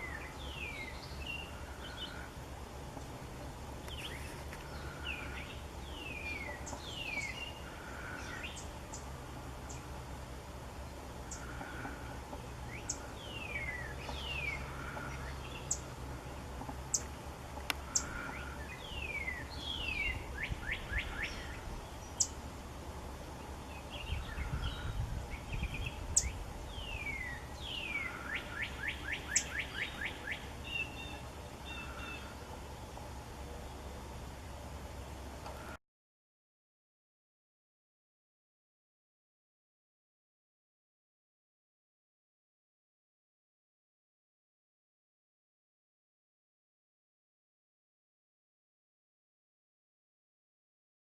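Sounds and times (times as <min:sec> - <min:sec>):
songbirds singing: 0:00.0 - 0:35.8.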